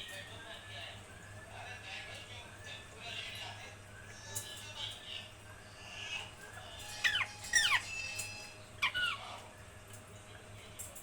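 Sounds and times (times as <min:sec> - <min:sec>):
parrot whistle: 0:06.8 - 0:09.2
parrot squawking: 0:06.8 - 0:09.4.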